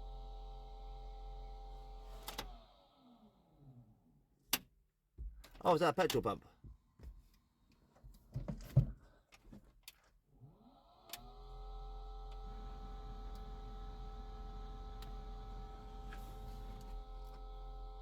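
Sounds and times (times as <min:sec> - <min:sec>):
motor spinning up and humming: 0:10.4 - 0:18.0.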